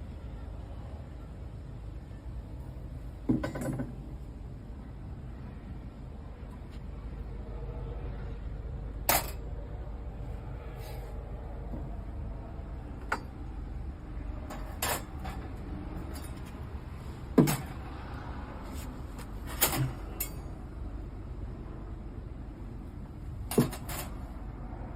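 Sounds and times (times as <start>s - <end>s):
steady low hum: 0.0s - 24.9s
objects knocking and clanking: 3.3s - 4.0s, 13.0s - 13.4s, 14.4s - 16.6s, 17.3s - 17.9s, 23.5s - 24.2s.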